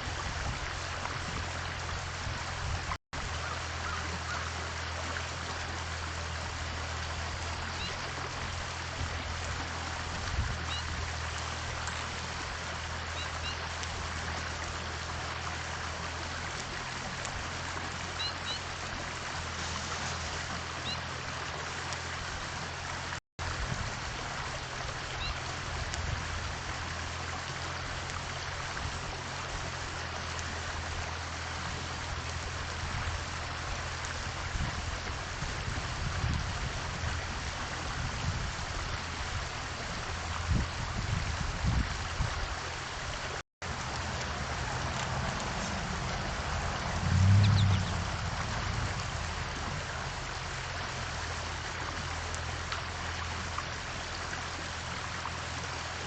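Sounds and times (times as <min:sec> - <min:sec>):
steady rushing noise: 0:43.7 - 0:50.7
low hum: 0:43.7 - 0:51.7
faint bird chirps: 0:47.4 - 0:48.0.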